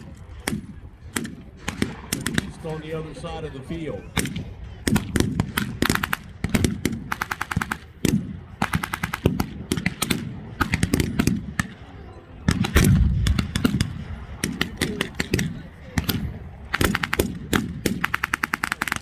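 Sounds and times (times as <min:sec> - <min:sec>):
automatic gunfire bursts: 0:04.2 - 0:11.8, 0:12.5 - 0:19.0
loud deep bang: 0:12.5 - 0:14.0
single gunshots: 0:12.5 - 0:19.0.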